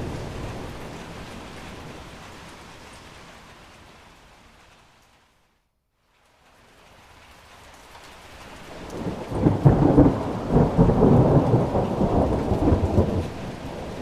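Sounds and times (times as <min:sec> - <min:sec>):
rolling thunder rumble: 0:00.0 - 0:02.7, 0:08.8 - 0:14.0
steady rain: 0:00.0 - 0:14.0.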